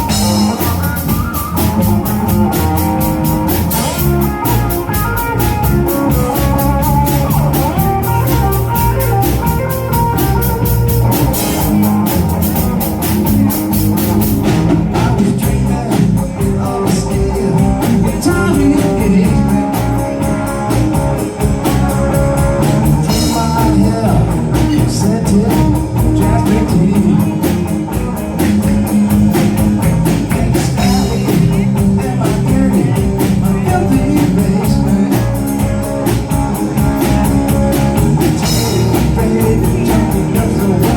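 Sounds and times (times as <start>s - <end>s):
bass guitar: 0.0s - 40.9s
drum kit: 0.0s - 40.9s
electric guitar: 0.0s - 40.9s.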